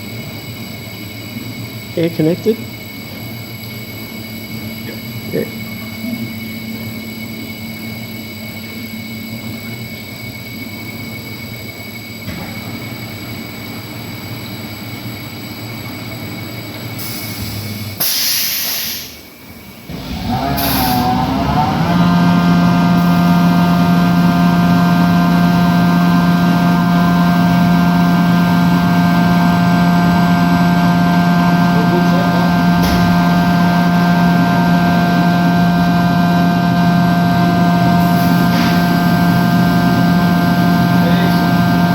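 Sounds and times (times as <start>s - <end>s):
burst of hiss: 17.0s - 19.3s
loud air blowing: 17.0s - 41.9s
machine hum: 19.1s - 41.9s.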